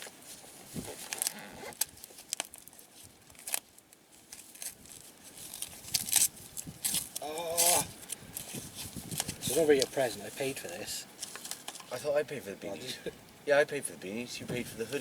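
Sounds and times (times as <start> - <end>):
wrapping paper tearing and crumpling: 0.0 - 10.2.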